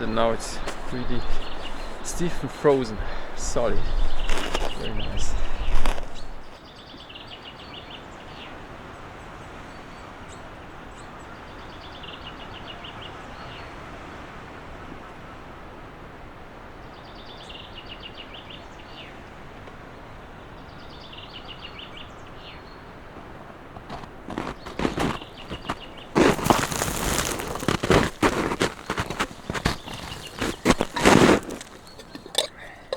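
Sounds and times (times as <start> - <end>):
small songbird singing: 0.0 - 8.6, 16.8 - 19.3, 19.9 - 23.0, 24.4 - 32.9.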